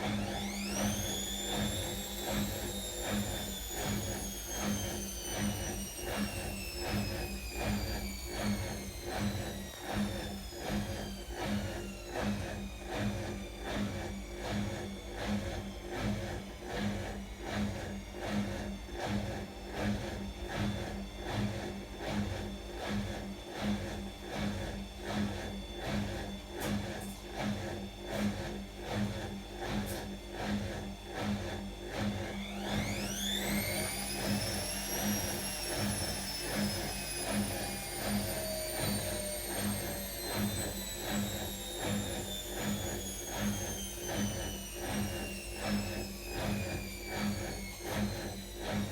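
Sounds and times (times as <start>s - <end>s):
washing machine motor whining: 0.0s - 29.4s, 30.4s - 48.9s.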